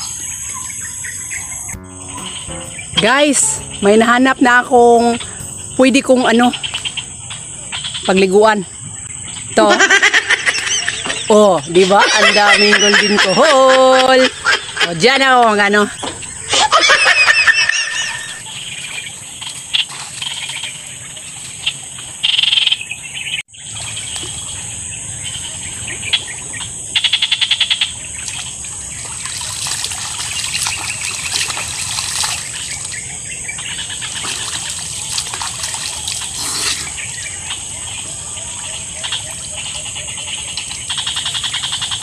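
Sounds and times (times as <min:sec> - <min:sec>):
birds calling: 0:00.0 - 0:20.8, 0:21.7 - 0:42.0
frogs calling: 0:00.0 - 0:42.0
high insect buzz: 0:33.6 - 0:37.1.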